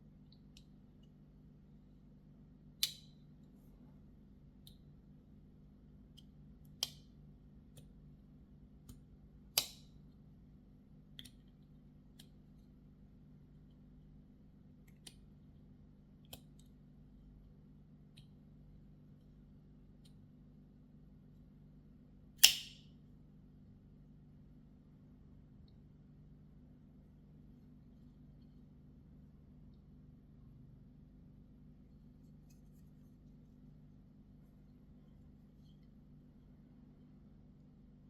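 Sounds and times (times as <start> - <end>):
knife snapping open and shut: 22.4 - 22.8.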